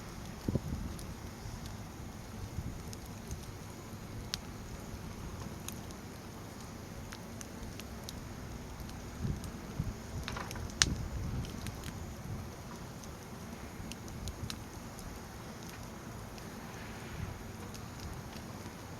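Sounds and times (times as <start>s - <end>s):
fire crackling and popping: 0.0s - 18.9s
rush of flames: 0.0s - 18.9s.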